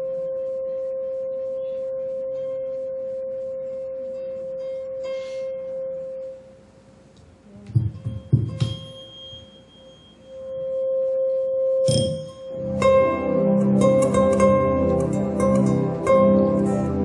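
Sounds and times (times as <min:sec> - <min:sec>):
tuning fork ringing: 0:00.0 - 0:06.6, 0:07.8 - 0:13.8.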